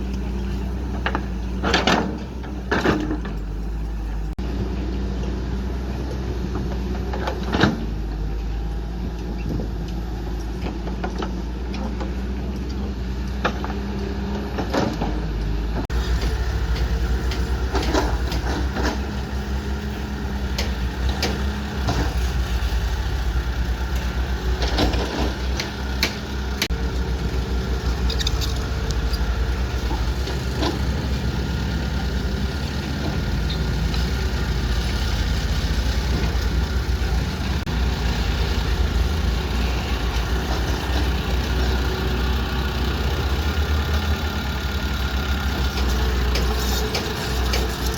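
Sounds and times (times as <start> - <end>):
diesel excavator engine running: 0.0 - 13.1, 13.9 - 47.9.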